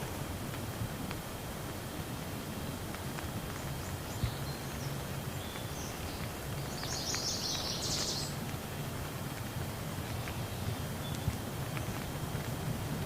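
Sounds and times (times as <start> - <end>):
steady rain falling: 0.0 - 13.0
bird chirping: 3.8 - 8.4.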